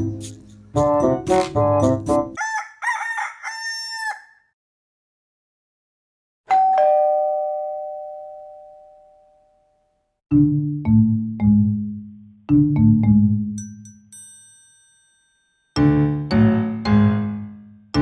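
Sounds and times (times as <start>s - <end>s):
piano music: 0.0s - 2.4s, 15.8s - 18.0s
two-note ding-dong chime: 6.5s - 9.6s.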